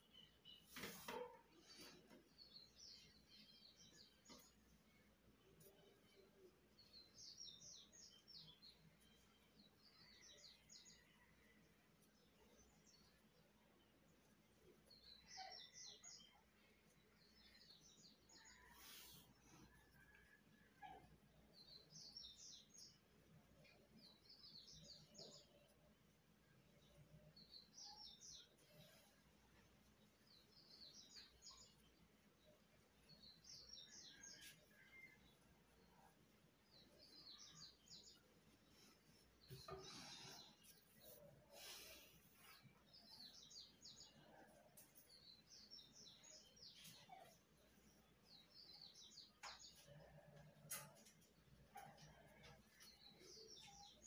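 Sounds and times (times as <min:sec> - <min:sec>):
faint bird chirps: 0:14.6 - 0:54.0.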